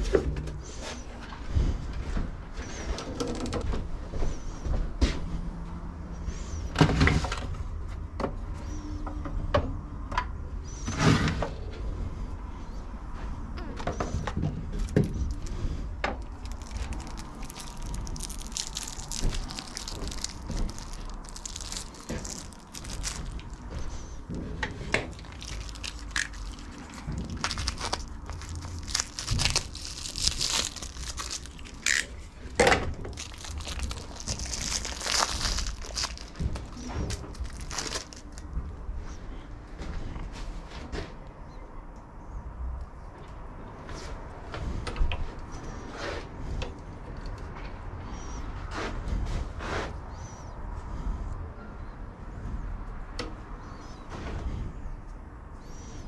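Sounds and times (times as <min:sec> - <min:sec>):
low background hum: 0:00.0 - 0:56.0
scraping and rustling: 0:14.0 - 0:38.5.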